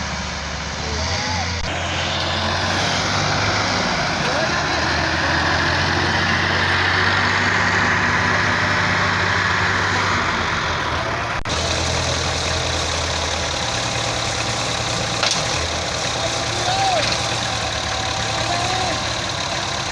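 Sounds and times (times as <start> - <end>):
diesel tractor engine running: 0.0 - 19.9.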